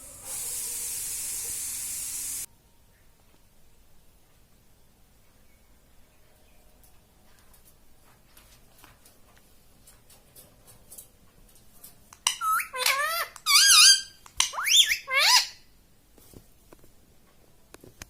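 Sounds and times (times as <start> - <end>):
parrot calling: 12.2 - 15.6.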